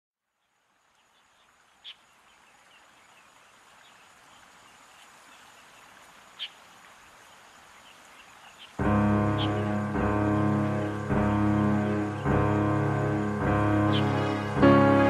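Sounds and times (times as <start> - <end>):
soft outdoor hiss: 0.2 - 15.0
high bird chirps: 8.6 - 12.6, 13.5 - 14.6.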